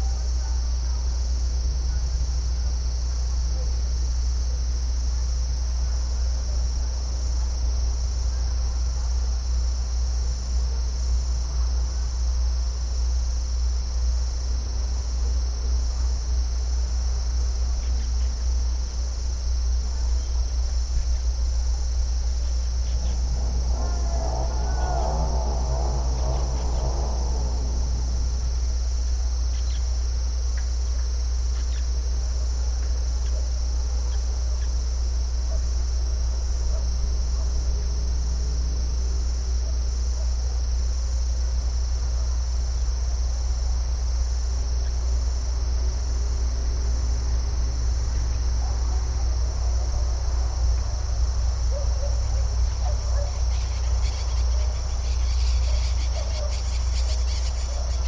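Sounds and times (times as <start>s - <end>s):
crickets chirping: 0.0s - 58.0s
rapid busy chirping: 20.1s - 30.0s, 52.5s - 58.0s
low rumble: 20.4s - 30.3s.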